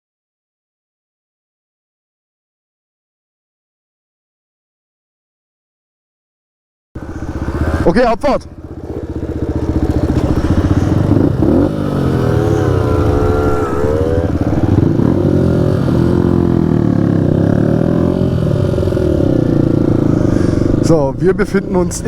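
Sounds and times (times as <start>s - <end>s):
motorbike engine revving: 7.0s - 22.0s.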